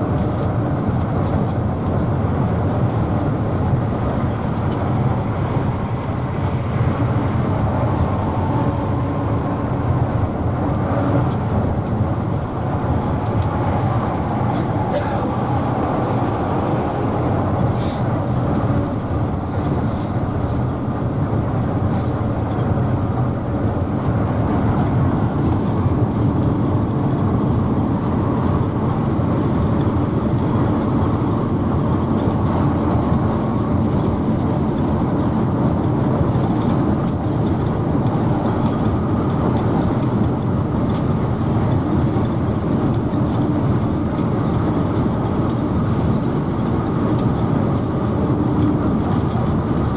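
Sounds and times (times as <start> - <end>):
bus diesel engine: 0.0 - 49.9.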